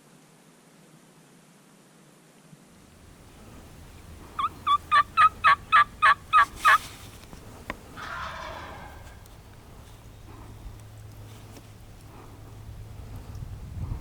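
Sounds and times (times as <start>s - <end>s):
turkey yelping: 3.0s - 12.5s.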